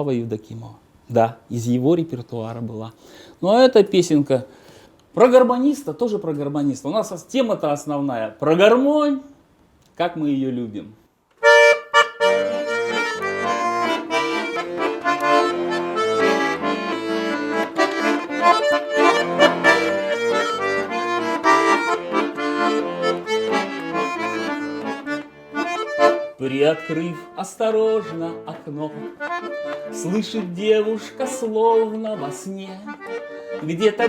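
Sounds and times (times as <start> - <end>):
button accordion melody: 11.4 - 34.0.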